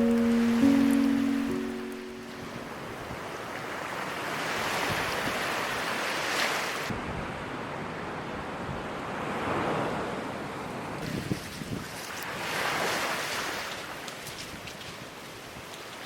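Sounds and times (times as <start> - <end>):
ocean surf washing ashore: 0.0 - 2.6.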